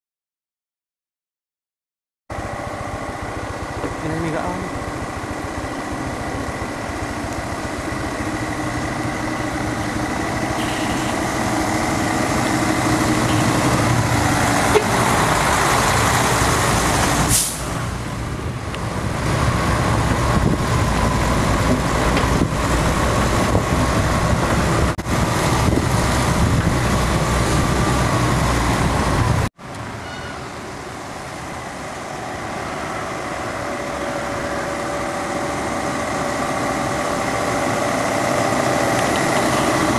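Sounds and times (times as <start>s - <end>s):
heavy truck engine under load: 2.3s - 39.9s
air hiss: 17.3s - 17.8s.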